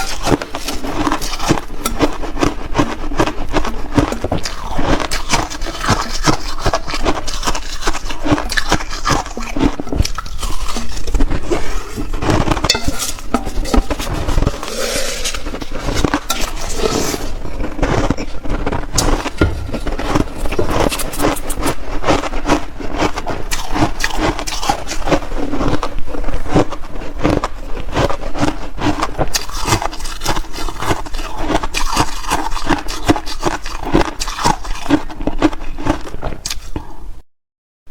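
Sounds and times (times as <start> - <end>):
ice being chewed: 0.0 - 37.0.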